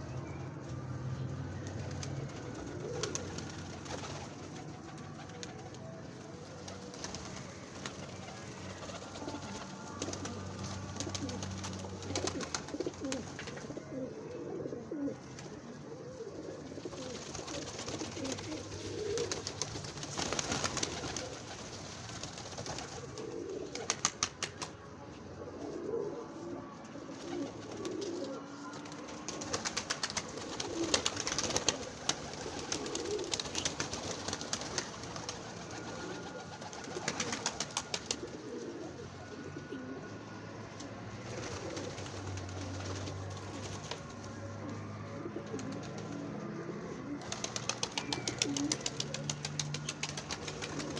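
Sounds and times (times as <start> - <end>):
pigeons cooing: 0.0 - 50.9.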